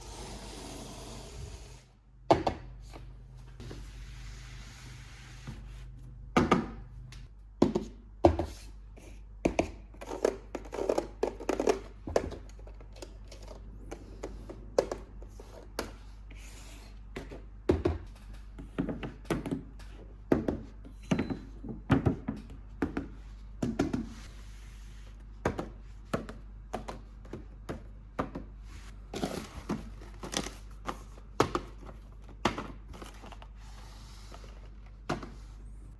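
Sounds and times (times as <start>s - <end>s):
cardboard and plastic packaging handled: 29.2s - 35.6s.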